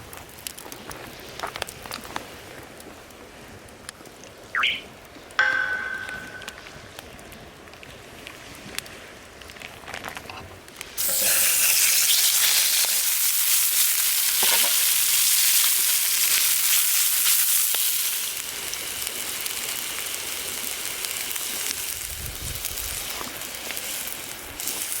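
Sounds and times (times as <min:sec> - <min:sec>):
food sizzling in hot oil: 0:11.0 - 0:25.0.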